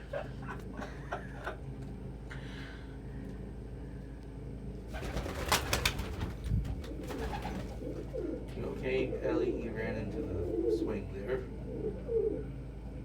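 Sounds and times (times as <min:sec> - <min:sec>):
birds moving about scratchy ticks: 0:04.9 - 0:09.0
pigeons cooing softly: 0:04.9 - 0:13.0.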